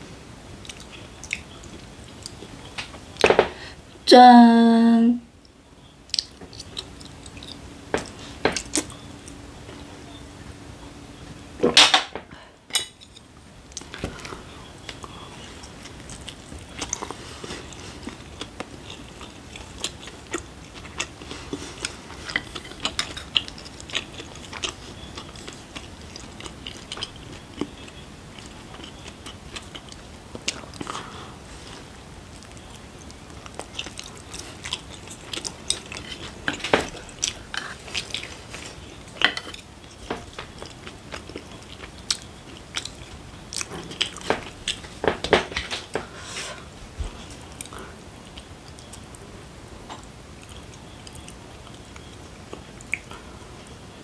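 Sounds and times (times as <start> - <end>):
chewing with wet mouth clicks: 0.6 - 2.5, 5.4 - 9.9, 12.9 - 31.1, 31.7 - 45.0, 47.4 - 49.2, 49.9 - 53.5.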